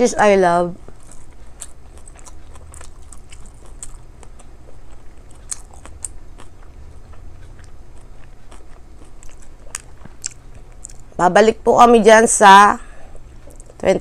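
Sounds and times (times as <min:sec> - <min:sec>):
low steady hum: 0:00.0 - 0:14.0
person chewing with wet mouth clicks: 0:00.8 - 0:11.1, 0:13.3 - 0:13.8.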